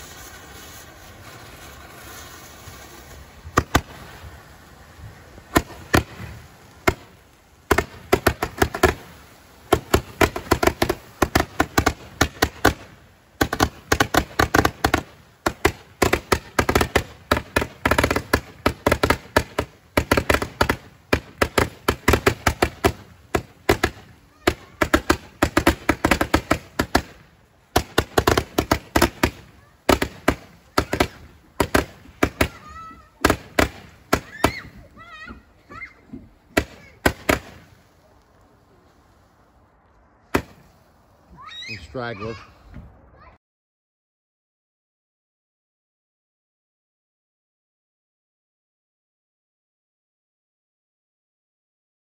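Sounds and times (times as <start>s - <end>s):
fireworks popping and cracking: 0.0s - 41.2s.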